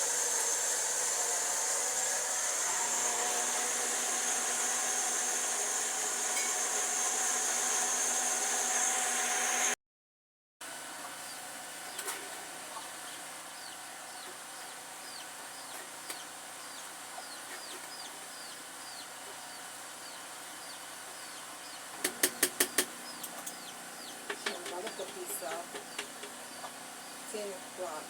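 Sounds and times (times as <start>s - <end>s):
bird chirping: 12.8s - 27.4s.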